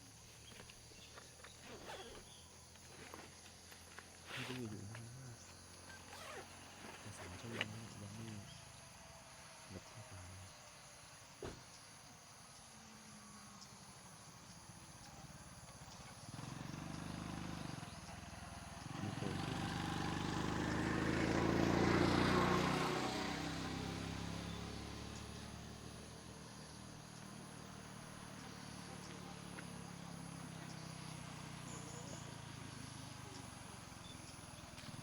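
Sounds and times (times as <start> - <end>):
vehicle passing by: 16.2 - 35.0.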